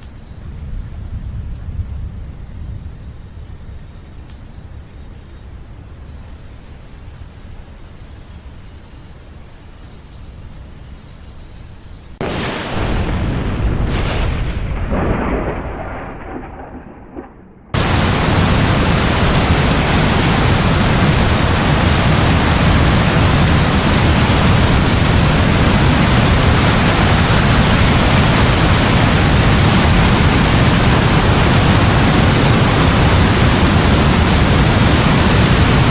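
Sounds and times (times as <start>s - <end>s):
heavy rain downpour: 0.0s - 10.9s, 12.2s - 17.1s, 17.7s - 35.9s
thunderclap rolling: 12.2s - 35.9s.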